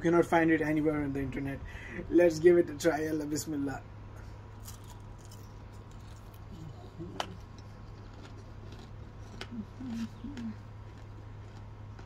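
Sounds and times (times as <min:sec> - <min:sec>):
crunching popcorn: 0:04.5 - 0:12.0.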